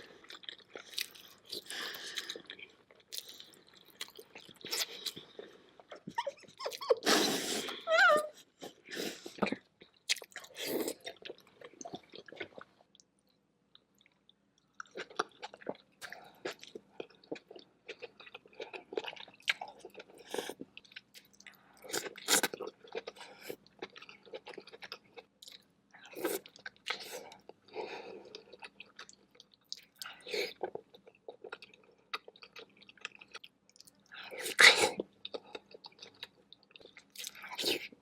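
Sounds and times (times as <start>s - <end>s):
wet chewing and mouth clicks: 0.2s - 7.0s, 28.3s - 38.0s.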